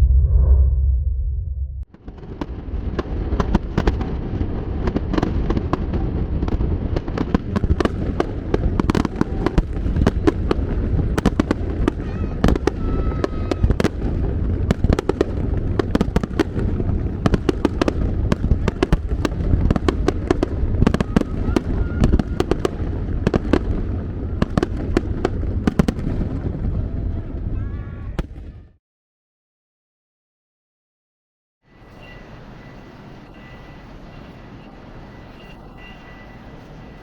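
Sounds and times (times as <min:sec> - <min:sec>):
low rumble: 0:00.0 - 0:02.8
fireworks bangs and crackle: 0:01.9 - 0:28.6.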